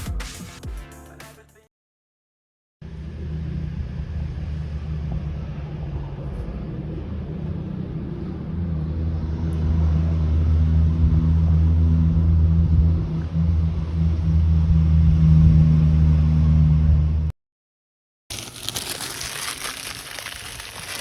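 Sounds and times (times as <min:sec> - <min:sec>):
low steady rumble: 0:02.8 - 0:17.3.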